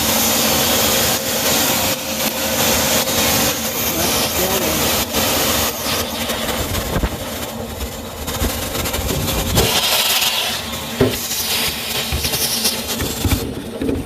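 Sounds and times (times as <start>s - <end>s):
vacuum cleaner running: 0.0s - 14.0s
vacuum nozzle knocking and rubbing: 8.4s - 14.0s.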